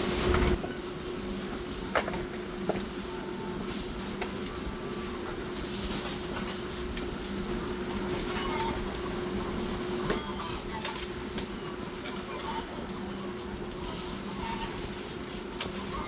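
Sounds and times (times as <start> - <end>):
machine humming and hissing: 0.0 - 16.0.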